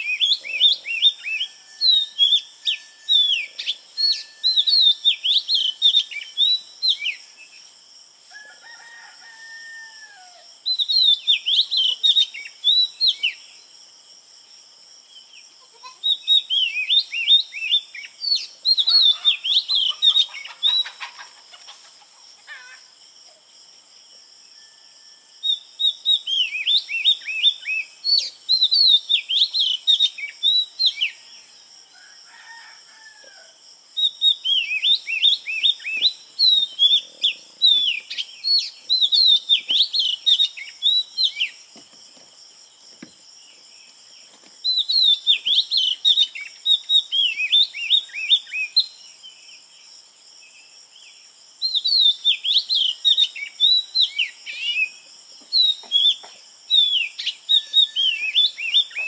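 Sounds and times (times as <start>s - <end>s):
birds chirping rapidly: 0.0s - 7.7s, 16.0s - 21.8s, 34.0s - 41.8s, 42.8s - 49.0s.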